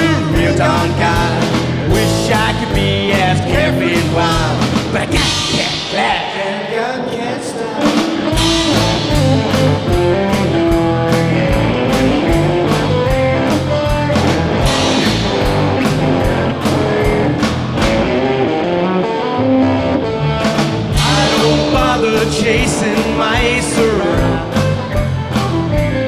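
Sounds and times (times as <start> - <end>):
drum kit steady beat: 0.0 - 6.4, 7.8 - 18.4, 20.4 - 26.0
walking bass: 0.0 - 6.4, 7.8 - 26.0
electric guitar lead: 0.0 - 26.0.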